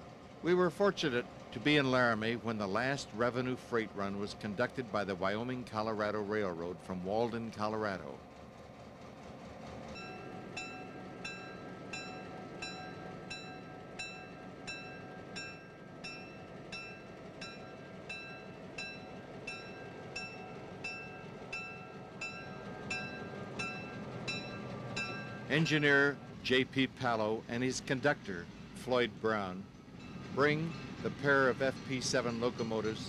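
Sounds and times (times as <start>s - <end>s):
railroad equipment hum: 0.0s - 33.0s
bell ringing: 9.9s - 26.1s.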